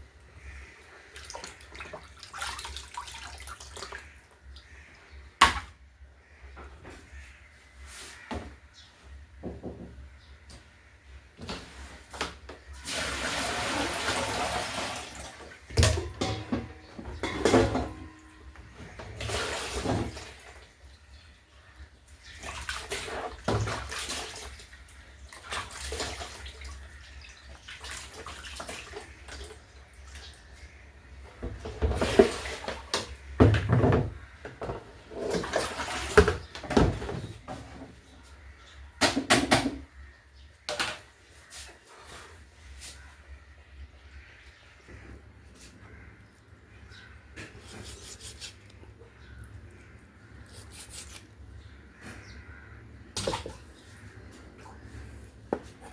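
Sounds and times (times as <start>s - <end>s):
water splashing in a basin: 0.4s - 5.8s, 12.7s - 30.8s, 31.6s - 34.3s, 35.1s - 37.1s, 53.0s - 55.9s
objects knocking and clattering: 15.7s - 20.2s, 31.4s - 37.9s.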